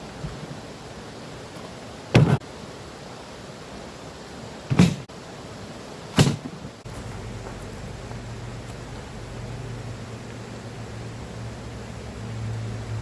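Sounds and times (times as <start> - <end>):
steady background hiss: 0.0 - 13.0
loud thumps: 2.1 - 2.4, 4.7 - 5.1, 6.2 - 6.8.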